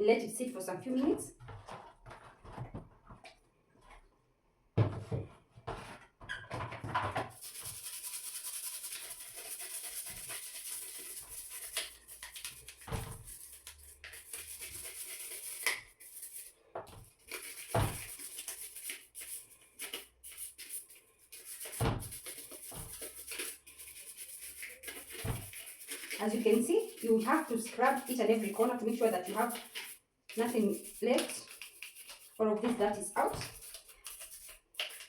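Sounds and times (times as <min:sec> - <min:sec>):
toothbrush scrubbing plastic: 0:07.3 - 0:35.0.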